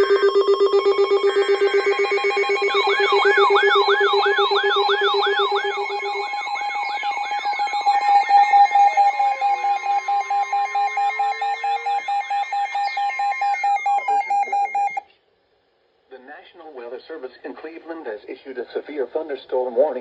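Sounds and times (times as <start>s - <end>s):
lower tone: 0.0s - 14.9s
pulsing beep: 0.0s - 15.0s
steady alert tone: 0.0s - 15.0s.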